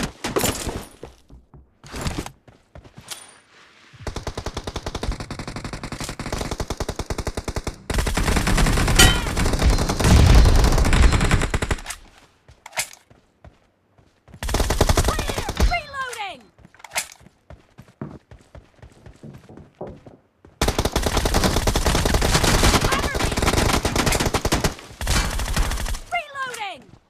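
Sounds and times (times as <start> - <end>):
video game automatic gunfire: 4.1 - 11.9, 14.4 - 15.8, 20.6 - 26.1.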